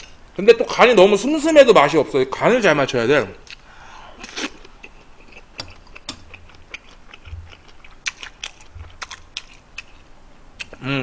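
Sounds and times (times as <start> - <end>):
person chewing food: 3.4 - 10.8.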